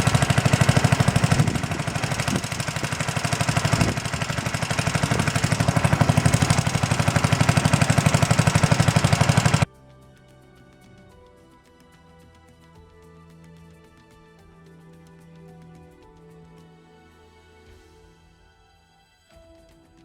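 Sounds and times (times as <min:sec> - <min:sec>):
small engine running: 0:00.0 - 0:09.7
quiet music: 0:09.7 - 0:20.0.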